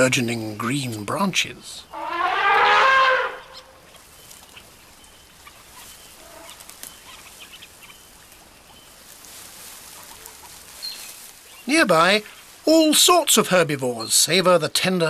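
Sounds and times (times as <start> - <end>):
short bird calls: 1.8 - 8.2.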